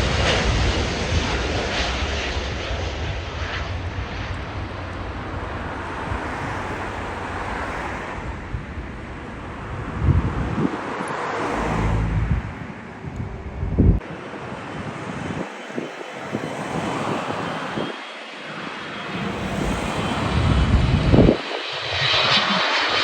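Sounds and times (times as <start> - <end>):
jet airliner engines rumbling: 0.0 - 23.0
low thumps: 11.5 - 14.0.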